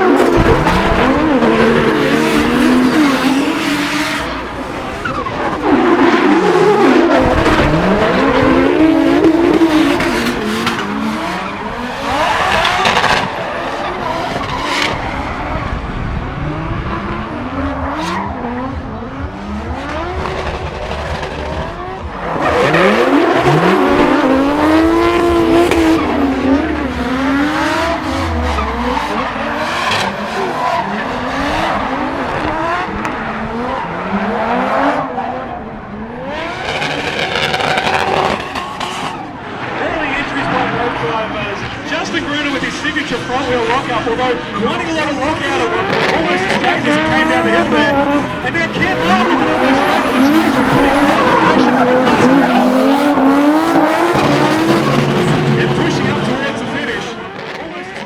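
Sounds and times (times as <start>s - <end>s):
car engine revving: 0.0s - 58.0s
tyres screeching: 44.2s - 57.6s.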